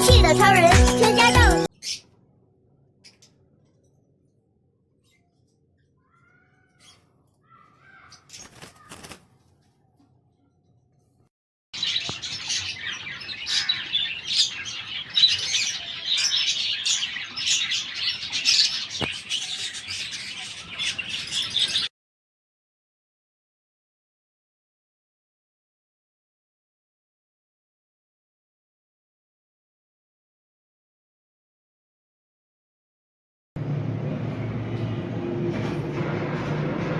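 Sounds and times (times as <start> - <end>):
small birds chirping: 1.1 - 2.2, 4.9 - 9.2, 11.8 - 21.9.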